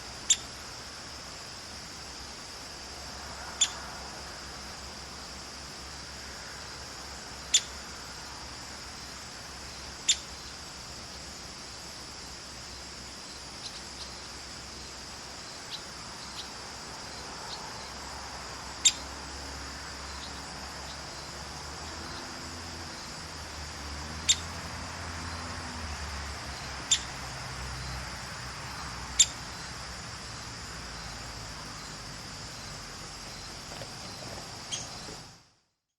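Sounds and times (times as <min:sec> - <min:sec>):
steady high hiss: 0:00.0 - 0:35.6
woodpecker pik calls: 0:26.8 - 0:27.2, 0:28.8 - 0:29.6, 0:33.3 - 0:35.2.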